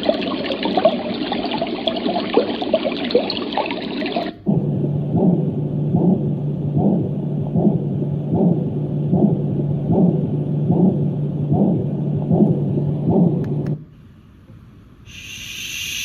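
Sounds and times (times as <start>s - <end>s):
sound machine low hum with pulse: 4.2s - 16.0s.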